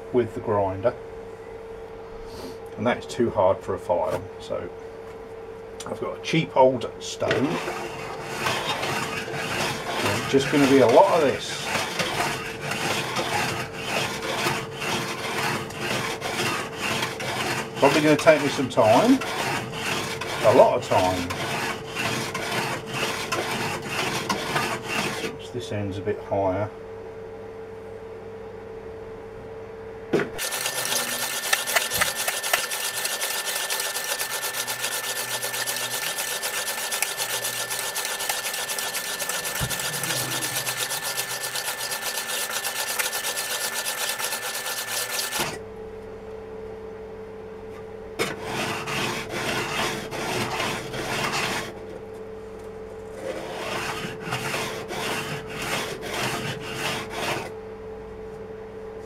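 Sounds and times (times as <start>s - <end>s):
saw blade rasping on sharpening stone: 7.5s - 25.3s, 30.4s - 45.5s.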